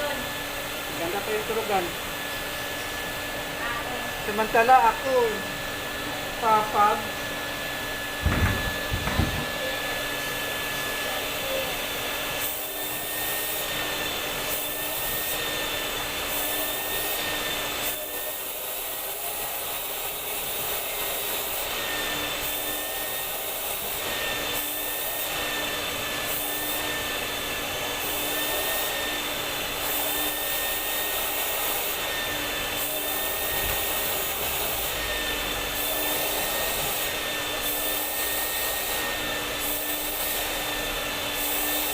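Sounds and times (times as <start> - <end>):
vacuum cleaner motor whirring: 0.0 - 41.9
knocks: 8.2 - 9.7.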